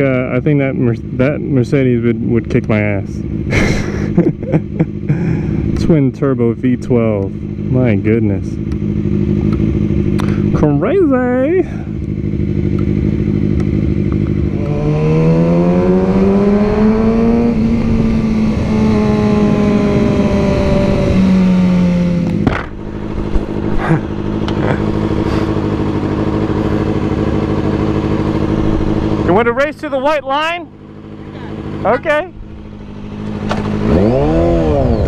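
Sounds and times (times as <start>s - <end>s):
motorcycle engine revving: 0.0s - 35.0s
wind and road noise: 0.0s - 35.0s
sharp crack: 22.2s - 23.4s.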